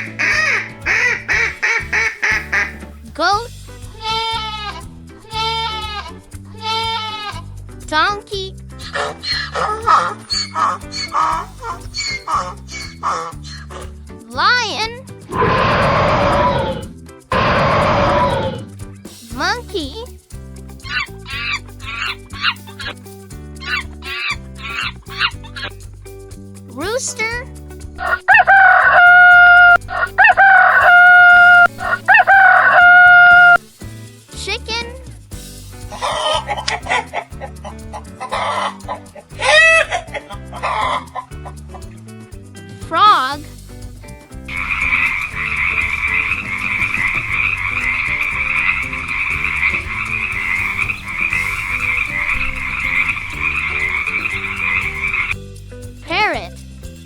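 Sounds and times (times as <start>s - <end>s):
frogs croaking in chorus: 0.0s - 2.9s
rooster crowing: 28.1s - 33.6s.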